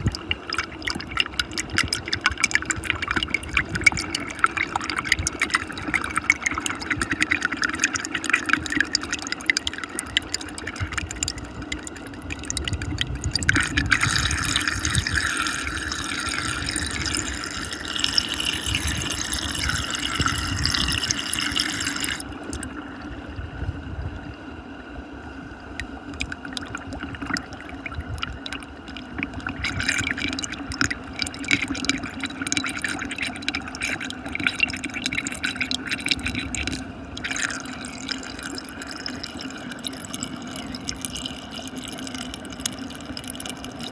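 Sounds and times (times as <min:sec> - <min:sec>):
water churning in whirlpool: 0:00.0 - 0:43.9.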